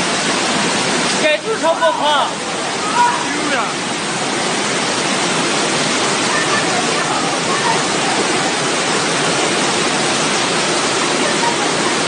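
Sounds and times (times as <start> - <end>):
floodwater rushing: 0.0 - 12.0
faint voices: 6.1 - 9.1.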